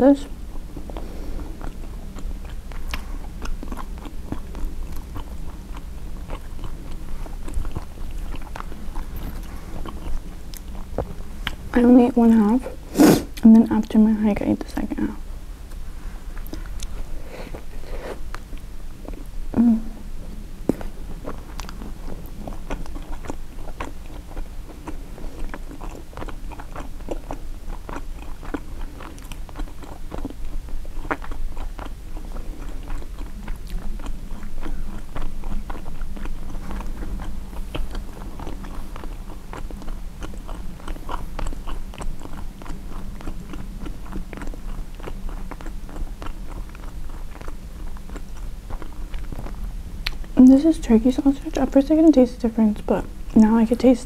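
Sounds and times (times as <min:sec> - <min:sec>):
steady low hum: 0:00.0 - 0:54.0
chewing and biting sandwich: 0:00.4 - 0:11.8, 0:20.6 - 0:50.4
mouth clicks and smacks: 0:32.6 - 0:50.4.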